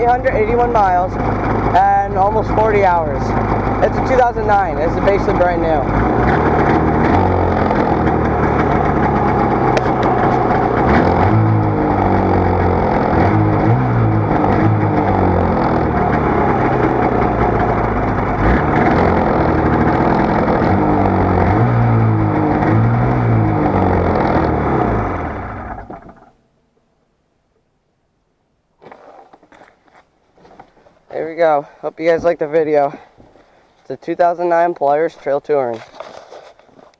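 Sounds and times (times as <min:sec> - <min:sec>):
snowmobile engine running: 0:00.0 - 0:26.3.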